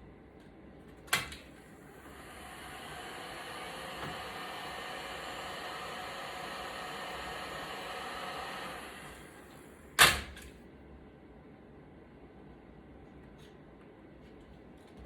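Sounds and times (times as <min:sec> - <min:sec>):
fan running down: 0:01.2 - 0:10.1
heat gun blowing: 0:01.9 - 0:09.7.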